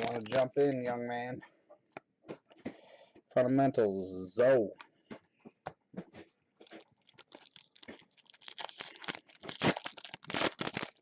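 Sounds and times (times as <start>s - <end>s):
card pack wrapper crinkling: 0.0s - 0.5s, 6.6s - 11.0s.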